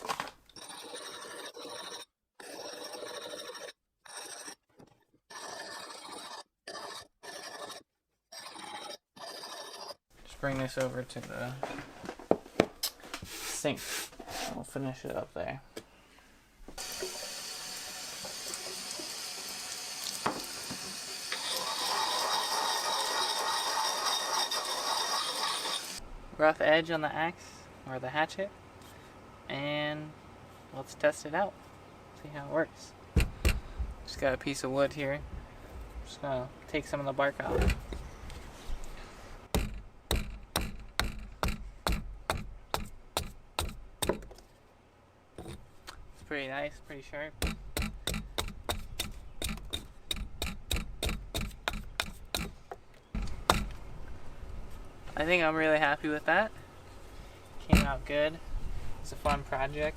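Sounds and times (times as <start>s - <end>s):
tap water running into sink: 16.8s - 22.0s
knock: 20.2s - 20.8s
hatchet chopping wood: 33.2s - 33.7s, 39.5s - 44.4s, 47.4s - 52.6s, 53.2s - 53.8s.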